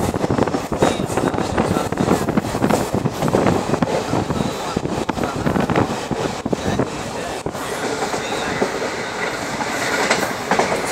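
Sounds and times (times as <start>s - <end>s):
train wheels rumbling on rails: 0.0s - 10.9s.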